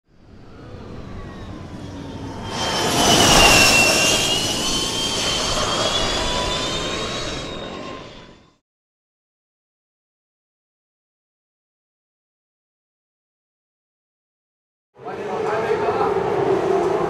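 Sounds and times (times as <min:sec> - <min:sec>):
electric motorcycle whine passing: 0:00.1 - 0:08.6
rushing noise: 0:00.4 - 0:08.6.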